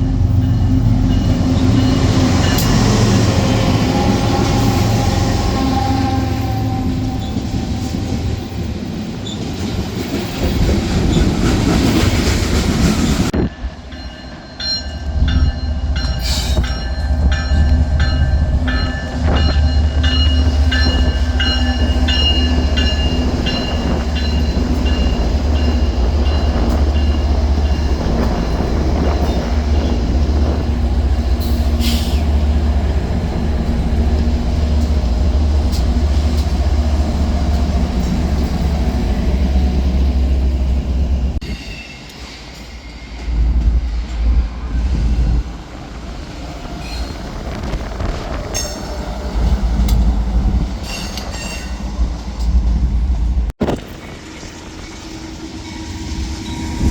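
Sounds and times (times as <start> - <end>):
train rushing rumble: 0.0 - 56.9
train wheel squeals and clicks: 14.6 - 30.7, 46.8 - 50.1, 50.7 - 52.8.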